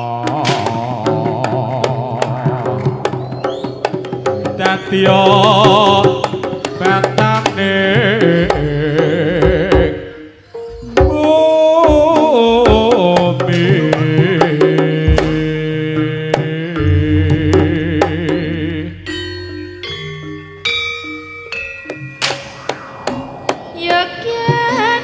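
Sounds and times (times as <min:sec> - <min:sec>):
metallophone notes: 0:10.0 - 0:11.9, 0:16.0 - 0:25.0
wavering lead melody: 0:16.8 - 0:25.0.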